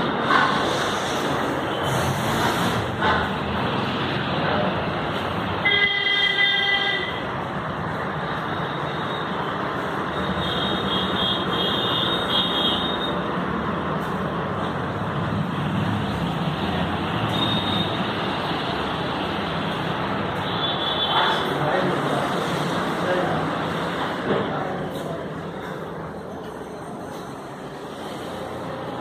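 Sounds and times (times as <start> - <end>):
road traffic: 0.0 - 29.0
vehicle horn honking: 5.6 - 7.3.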